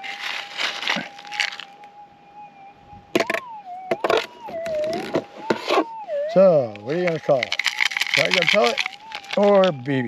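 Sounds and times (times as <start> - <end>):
dirt rattling in a scoop: 0.0 - 1.6, 6.8 - 10.0.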